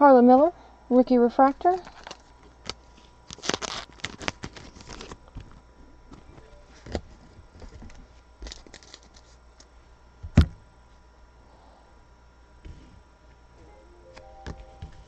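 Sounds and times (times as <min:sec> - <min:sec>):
trading cards and wrappers crinkling: 0:01.5 - 0:09.7.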